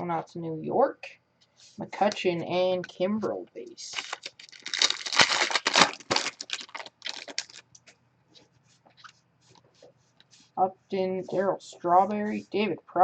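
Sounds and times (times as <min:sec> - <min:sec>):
card wrapper crinkling: 0:03.8 - 0:07.8.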